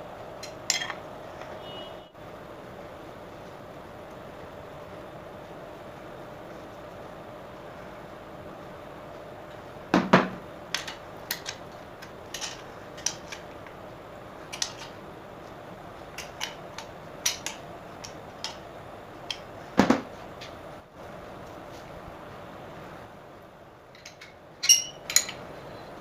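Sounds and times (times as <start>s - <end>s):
steady background hum: 0.0s - 26.0s
metal parts clinking and tapping: 0.4s - 1.5s, 10.7s - 13.5s, 14.5s - 15.0s, 16.2s - 18.6s, 23.9s - 25.5s.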